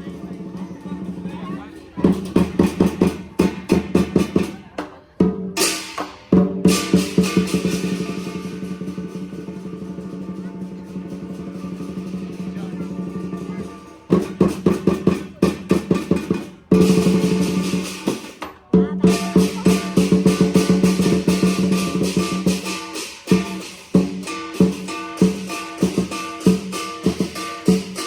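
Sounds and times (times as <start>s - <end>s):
drum roll: 0.0s - 28.0s
loud drum strikes: 2.0s - 28.0s
steady ringing tones: 19.2s - 28.0s.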